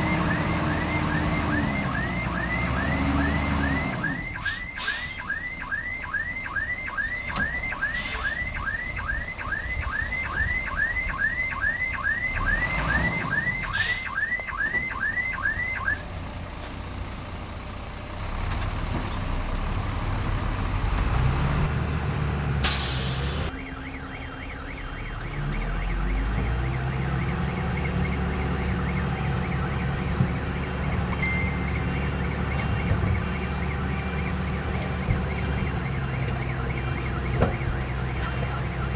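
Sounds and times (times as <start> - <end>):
diesel engine running: 0.0 - 5.1
reversing alarm chirping: 0.0 - 16.0, 22.7 - 38.9
short hiss: 22.6 - 23.5.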